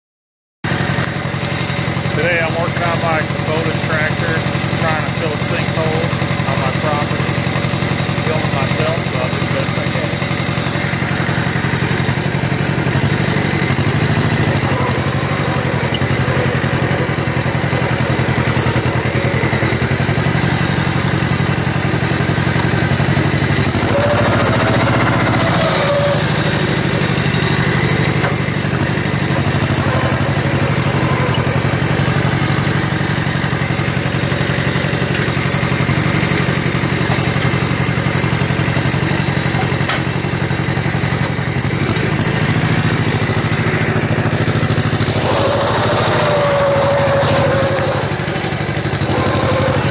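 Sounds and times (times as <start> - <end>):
tractor diesel engine running: 0.6 - 49.9.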